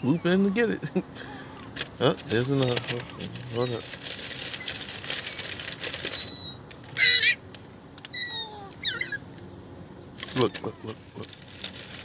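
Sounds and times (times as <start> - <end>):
harsh bird calls: 4.4 - 7.4, 8.1 - 9.3.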